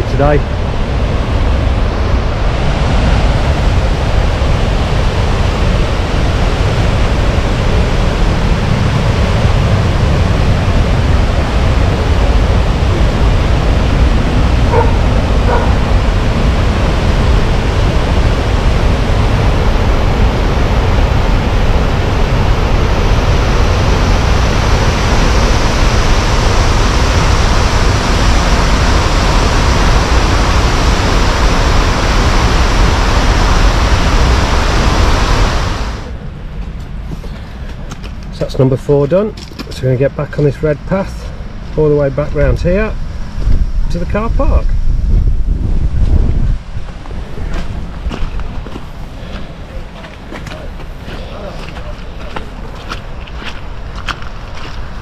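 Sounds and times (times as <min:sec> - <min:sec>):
waterfall rushing: 0:00.0 - 0:36.2
dog barking: 0:14.7 - 0:15.8.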